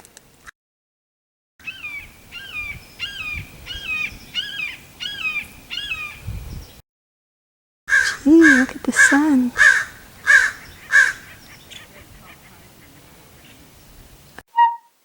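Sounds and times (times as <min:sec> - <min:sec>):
bird calling short rising notes: 0:14.5 - 0:15.0.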